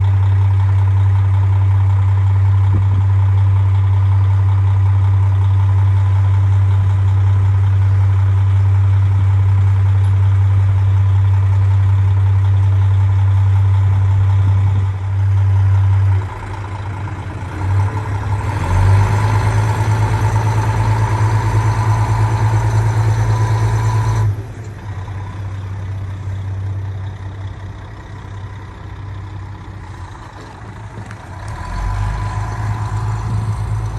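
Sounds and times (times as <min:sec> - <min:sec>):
train engine idling hum: 0:00.0 - 0:33.9
train engine whine: 0:16.1 - 0:33.9.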